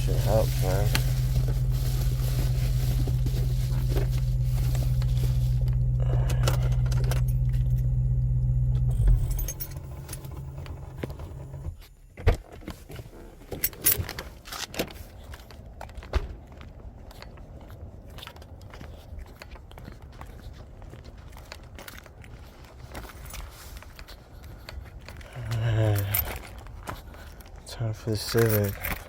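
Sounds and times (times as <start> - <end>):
keys jangling: 0.0 - 8.1, 8.9 - 10.9, 13.5 - 15.5, 21.4 - 27.6, 28.2 - 29.0
car engine idling: 0.0 - 11.8.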